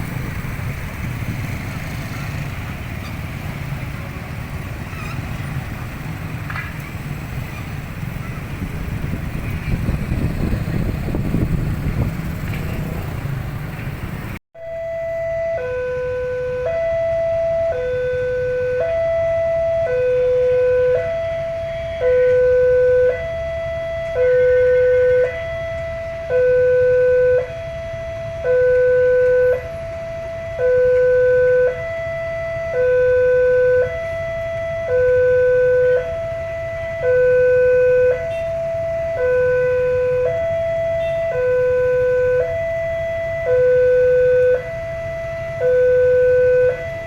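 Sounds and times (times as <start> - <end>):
steady low rumble: 5.6 - 14.4
level crossing two-tone alarm: 45.6 - 47.0.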